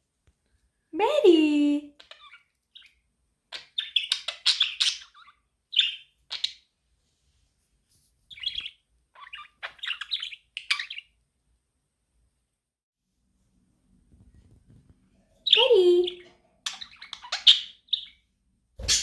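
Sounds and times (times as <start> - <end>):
budgerigar chirping: 2.0 - 6.6, 8.3 - 11.1, 15.5 - 18.2, 18.8 - 19.0.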